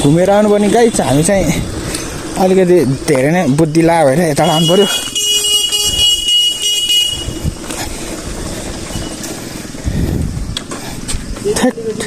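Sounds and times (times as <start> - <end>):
vehicle engine rumbling: 0.0 - 12.0
vehicle horn: 4.4 - 7.6.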